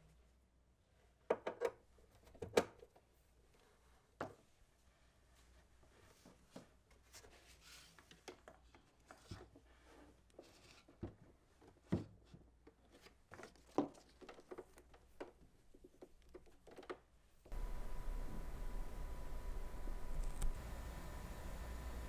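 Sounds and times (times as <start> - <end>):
light handling clicks and rustles: 12.4 - 18.6.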